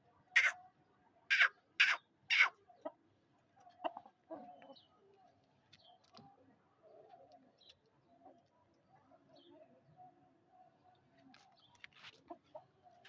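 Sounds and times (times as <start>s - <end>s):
chickens clucking: 0.4s - 0.6s, 1.3s - 3.0s, 3.6s - 4.8s
chickens squawking: 0.4s - 0.6s, 1.3s - 2.6s.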